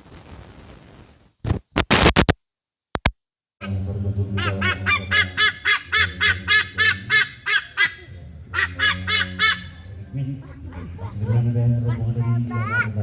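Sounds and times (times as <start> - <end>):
goose honking: 4.4 - 10.0.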